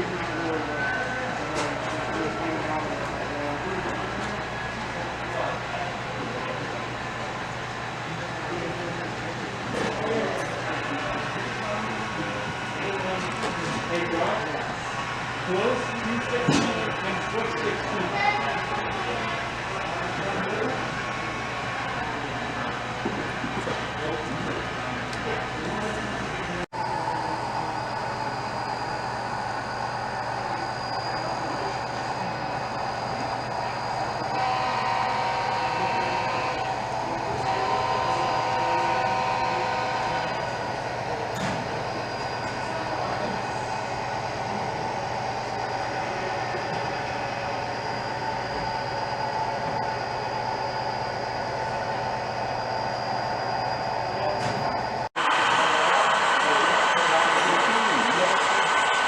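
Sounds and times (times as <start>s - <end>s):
model train humming: 0.0s - 59.0s
train horn chord blasts: 34.3s - 36.8s, 37.4s - 40.4s.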